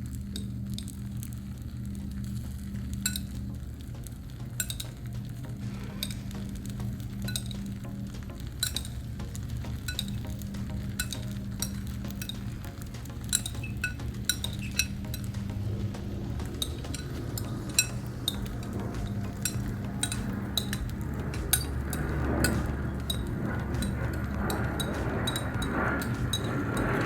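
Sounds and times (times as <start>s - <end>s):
steady low hum: 0.0s - 27.0s
metal spatulas scraping griddle: 5.6s - 7.5s.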